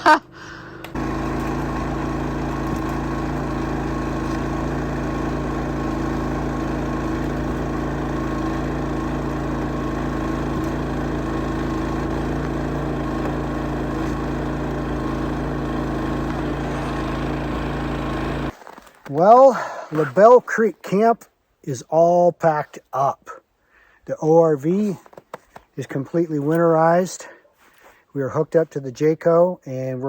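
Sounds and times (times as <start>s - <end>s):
engine humming steadily: 0.0s - 18.5s.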